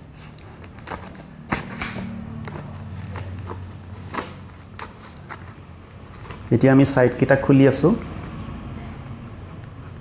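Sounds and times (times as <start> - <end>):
cardboard tearing and crinkling: 0.2 - 6.7.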